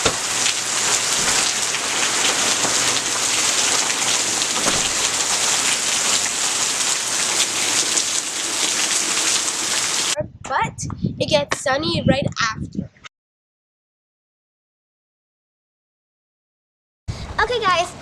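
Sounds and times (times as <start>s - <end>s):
steady rain falling: 0.0s - 10.2s.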